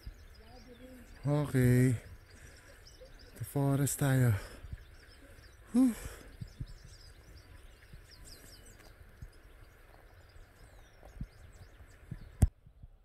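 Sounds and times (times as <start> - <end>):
small birds chirping: 0.0 - 12.8
soft low thumps: 6.0 - 13.0.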